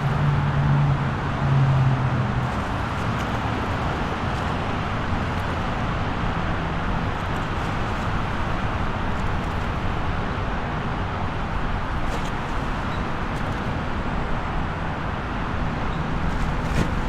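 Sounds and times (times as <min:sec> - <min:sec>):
highway traffic: 0:00.0 - 0:17.0.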